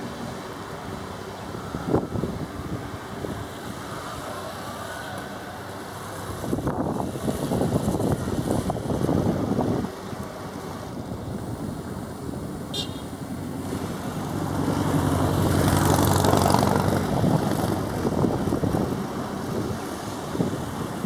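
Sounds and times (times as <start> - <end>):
propeller aircraft passing: 11.4 - 21.0.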